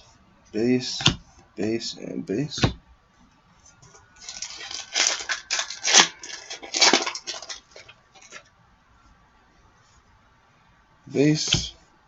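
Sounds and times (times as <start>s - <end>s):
wrapper crinkling and tearing: 4.2s - 8.4s.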